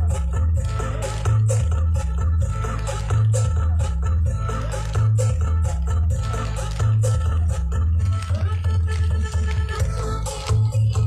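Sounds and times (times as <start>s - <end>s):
loud music with heavy bass: 0.0s - 11.0s.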